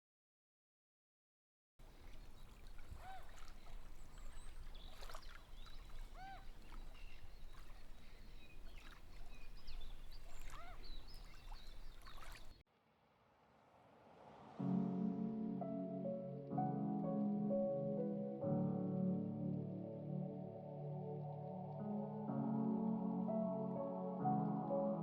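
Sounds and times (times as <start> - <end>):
low rumble of wind: 1.8 - 12.6
birds chirping and calling: 2.0 - 12.6
loud arching bird calls: 2.1 - 12.5.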